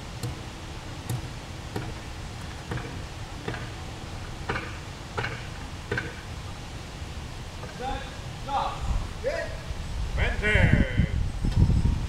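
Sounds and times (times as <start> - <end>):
ramrod knocking in cannon bore: 1.0 - 3.8, 4.5 - 6.2.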